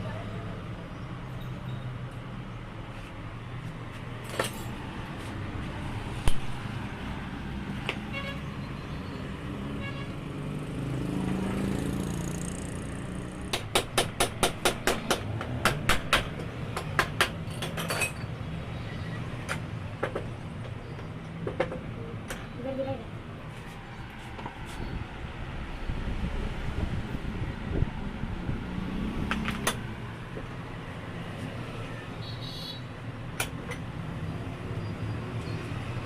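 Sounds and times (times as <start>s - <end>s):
traffic rumble: 0.0s - 36.0s
vehicle passing: 3.3s - 13.5s, 23.3s - 32.1s.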